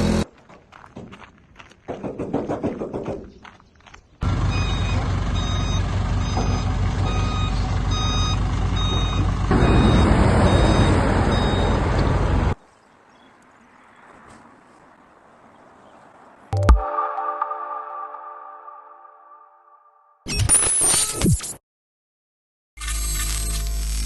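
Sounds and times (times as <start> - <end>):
truck engine running: 0.0 - 0.2, 4.2 - 12.6
reversing alarm beeping: 4.5 - 12.0.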